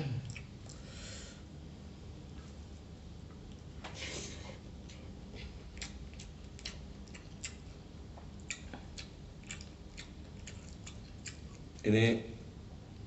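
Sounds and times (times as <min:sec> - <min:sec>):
person chewing food: 0:00.2 - 0:00.9, 0:04.6 - 0:11.8.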